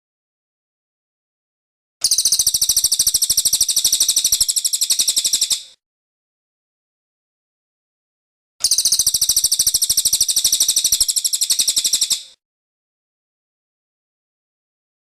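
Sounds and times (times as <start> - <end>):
songbird rapid trill: 2.0 - 5.8, 8.6 - 12.4.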